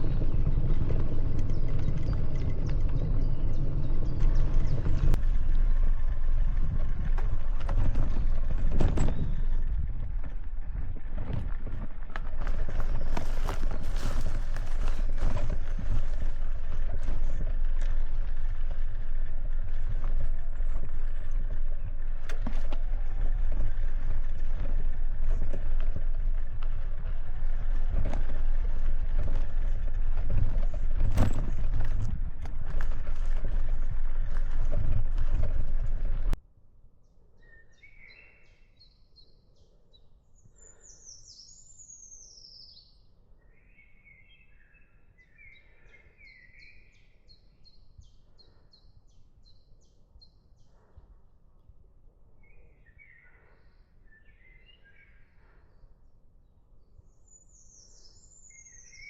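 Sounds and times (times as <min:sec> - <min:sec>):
knocks and rattles: 0:00.0 - 0:36.4
road noise: 0:00.0 - 0:36.4
small truck engine rumbling: 0:00.0 - 0:36.4.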